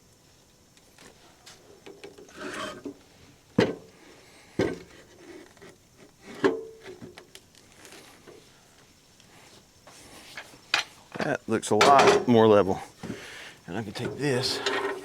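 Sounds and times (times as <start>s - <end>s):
wooden boards scraping: 2.3s - 2.9s.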